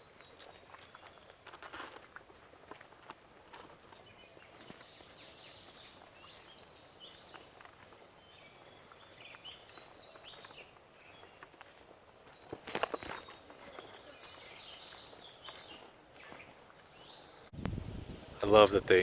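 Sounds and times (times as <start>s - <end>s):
footsteps on a trail: 0.0s - 18.2s
faint birds chirping and trilling: 3.8s - 19.0s.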